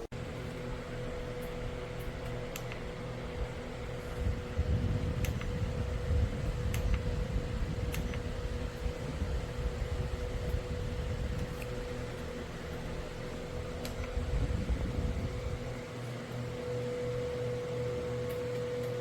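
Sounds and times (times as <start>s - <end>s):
low rumble of moving air: 0.0s - 16.6s
fan humming: 0.0s - 19.0s.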